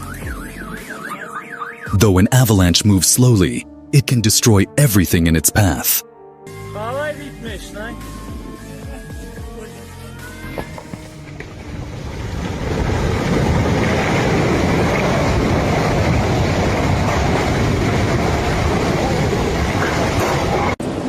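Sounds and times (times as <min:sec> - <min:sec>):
landslide rumbling roar: 0:11.2 - 0:21.0.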